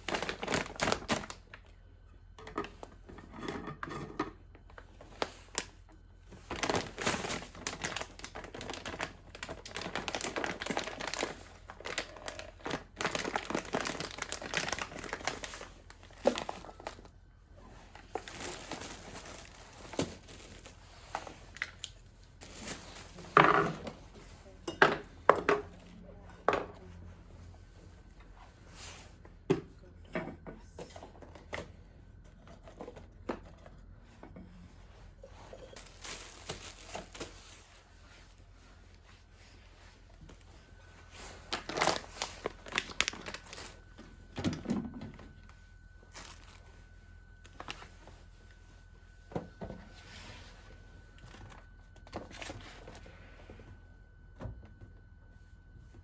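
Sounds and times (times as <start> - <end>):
faint steady tone: 37.4 - 56.0.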